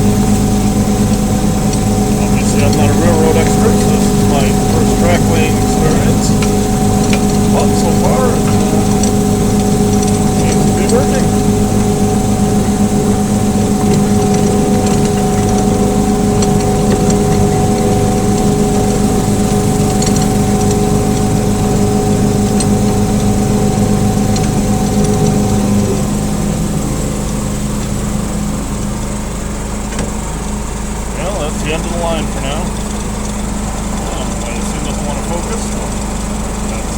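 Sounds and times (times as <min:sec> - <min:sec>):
small locomotive engine running: 0:00.0 - 0:36.9.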